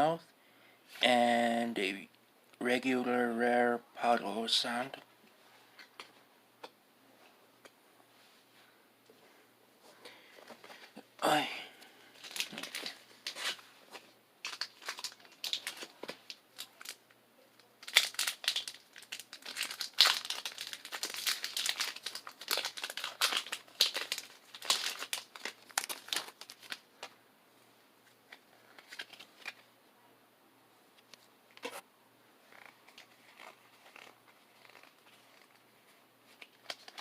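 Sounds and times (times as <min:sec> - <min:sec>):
foil wrapper crinkling and tearing: 0:12.2 - 0:13.6, 0:14.4 - 0:17.0, 0:17.6 - 0:26.9, 0:36.4 - 0:37.0.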